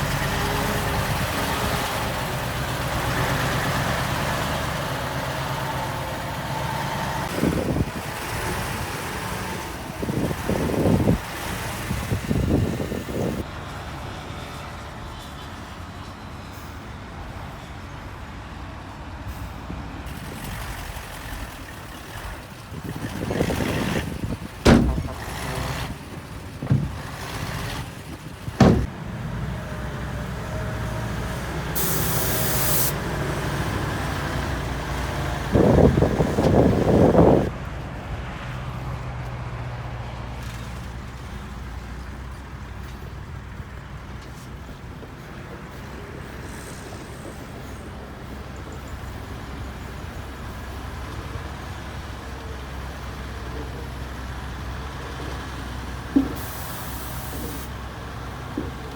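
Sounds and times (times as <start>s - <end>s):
diesel machinery droning: 0.0s - 58.9s
air hiss: 31.8s - 33.0s, 56.4s - 57.7s.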